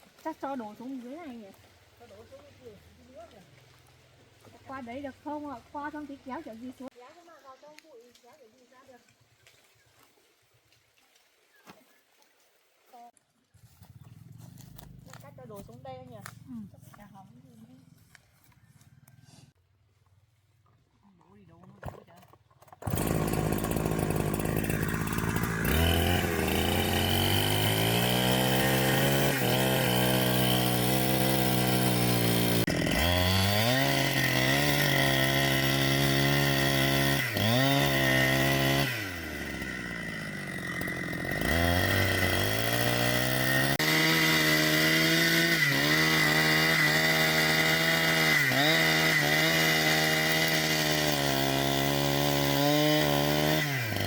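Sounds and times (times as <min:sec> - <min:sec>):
chainsaw cutting into tree: 0:21.8 - 0:54.0.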